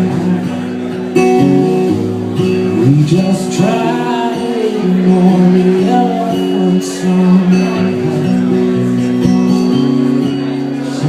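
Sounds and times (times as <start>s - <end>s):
acoustic guitar: 0.0s - 11.0s
man singing: 2.5s - 9.0s.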